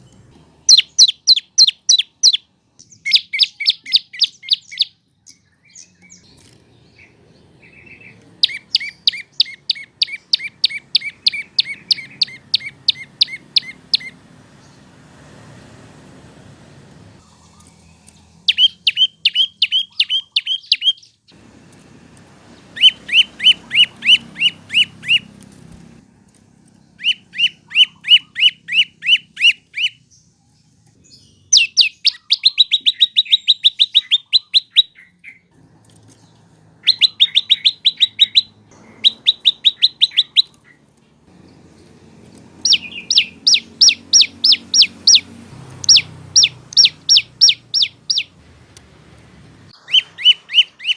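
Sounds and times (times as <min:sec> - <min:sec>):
songbird chip notes: 0:17.2 - 0:21.4, 0:36.8 - 0:48.4, 0:49.8 - 0:50.9.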